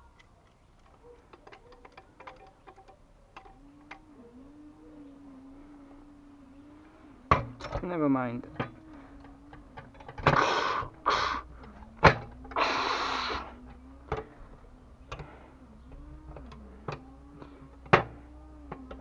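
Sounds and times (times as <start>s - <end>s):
clicks and knocks of tools: 0.0s - 4.1s, 7.3s - 10.9s, 13.6s - 19.0s.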